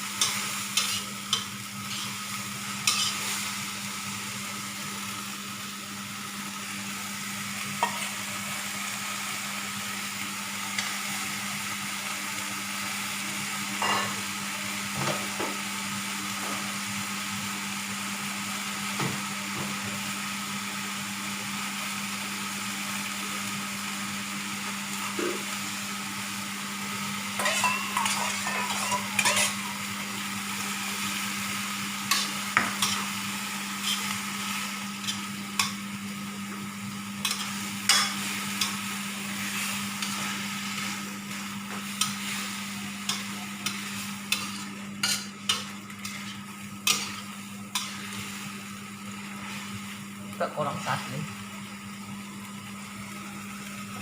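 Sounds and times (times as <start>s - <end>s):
food sizzling in a frying pan: 0.0s - 54.0s
utensil scraping a pan: 0.3s - 1.1s, 2.8s - 3.3s, 27.4s - 29.7s, 43.1s - 48.2s.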